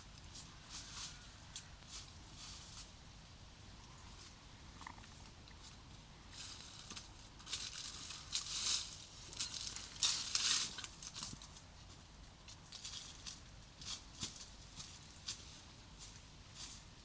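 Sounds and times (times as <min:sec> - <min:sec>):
rustling and crinkling handling: 0:05.6 - 0:17.0.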